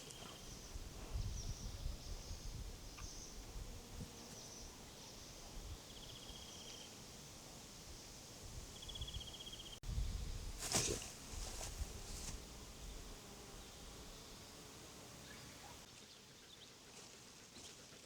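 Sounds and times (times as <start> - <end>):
small birds chirping: 0.0 - 7.0, 8.7 - 9.8, 12.8 - 18.0.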